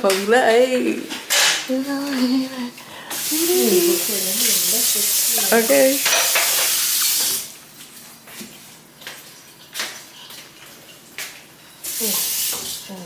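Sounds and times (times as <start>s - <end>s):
food sizzling in frying pan: 3.1s - 7.6s, 11.8s - 13.0s.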